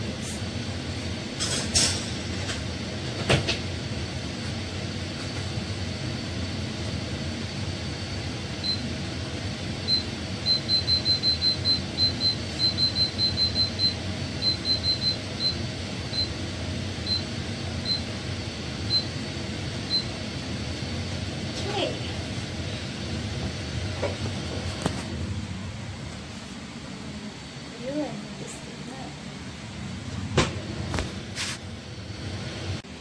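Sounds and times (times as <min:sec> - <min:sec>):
steady hum: 0:00.0 - 0:33.0
control panel beeping: 0:09.9 - 0:16.3.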